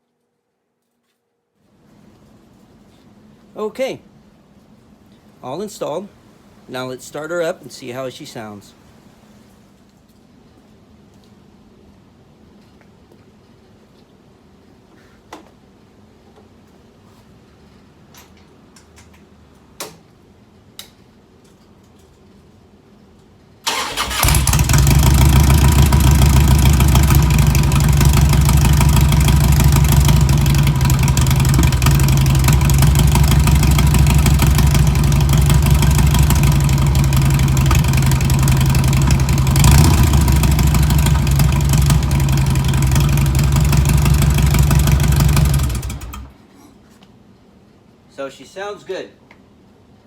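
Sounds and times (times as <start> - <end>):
motorcycle engine idling: 23.7 - 46.3.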